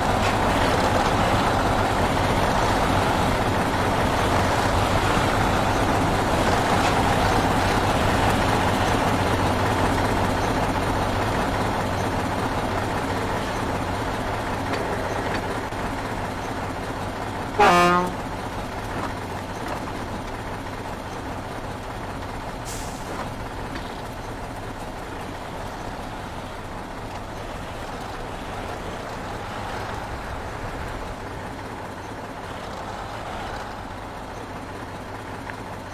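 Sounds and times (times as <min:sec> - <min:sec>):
heavy truck engine running: 0:00.0 - 0:35.9
truck horn toot: 0:17.5 - 0:18.4.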